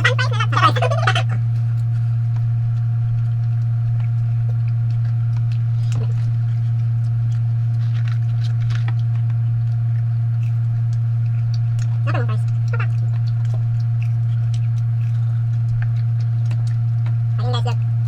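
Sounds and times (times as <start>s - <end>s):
faint eating clicks and smacks: 0.0s - 18.0s
low electrical hum: 0.0s - 18.0s.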